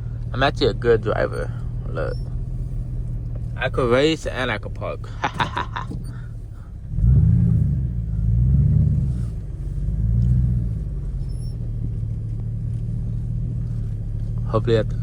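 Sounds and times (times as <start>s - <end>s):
engine idling: 0.0s - 15.0s
engine revving: 0.0s - 15.0s.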